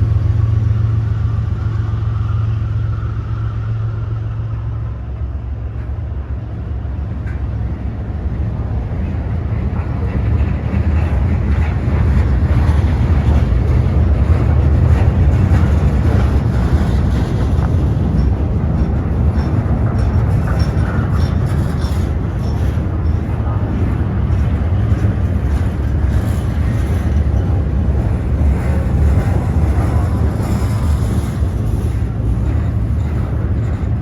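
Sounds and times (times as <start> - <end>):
diesel locomotive engine drone: 0.0 - 34.0
wheels rattling and clicking on rails: 0.0 - 34.0.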